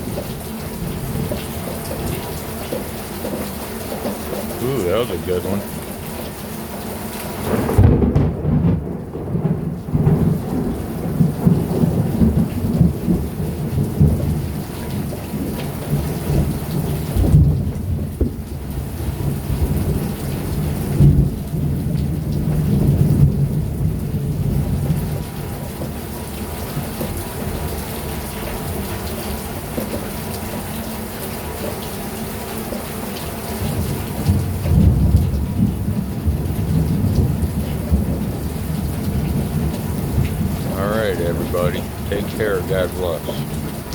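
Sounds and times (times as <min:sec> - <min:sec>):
heavy rain pouring: 0:00.0 - 0:43.9
thunder rumbling: 0:07.5 - 0:14.4.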